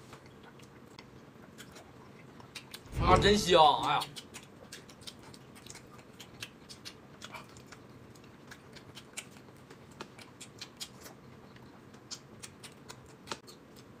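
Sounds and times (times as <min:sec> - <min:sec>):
person chewing: 0:00.0 - 0:03.0, 0:03.8 - 0:14.0.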